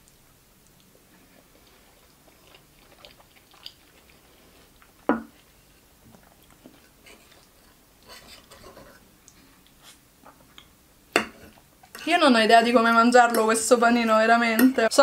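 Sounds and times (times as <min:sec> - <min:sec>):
person chewing tomato: 0:00.0 - 0:07.7.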